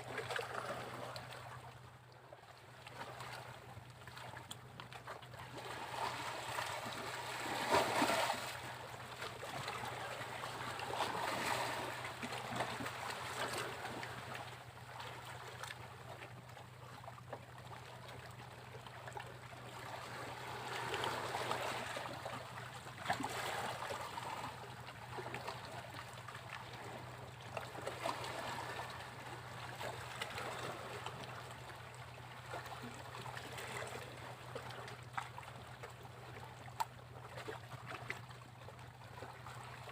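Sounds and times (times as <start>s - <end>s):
sea waves breaking on beach: 5.6s - 8.9s.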